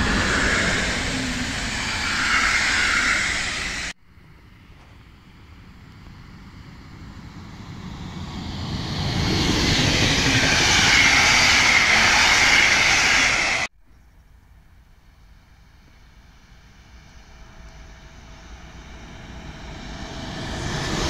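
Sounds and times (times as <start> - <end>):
train wheels rumbling on rails: 0.0 - 13.7, 15.8 - 21.0.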